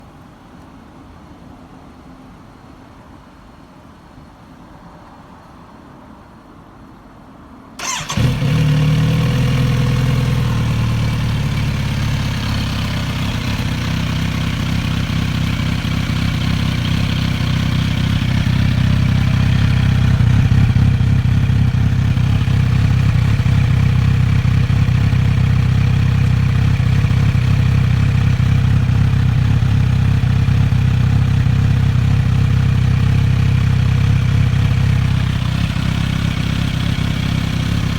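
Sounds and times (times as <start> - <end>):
motorcycle engine starting and idling: 7.8 - 37.9.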